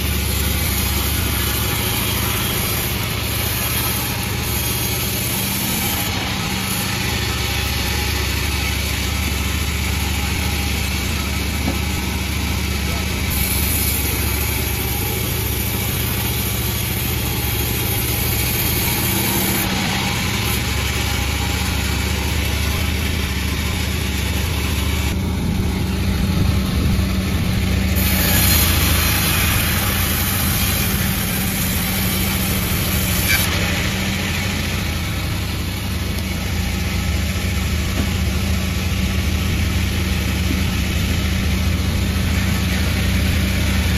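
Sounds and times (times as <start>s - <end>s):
sawmill engine running: 0.0s - 43.9s
high hiss: 27.9s - 36.8s.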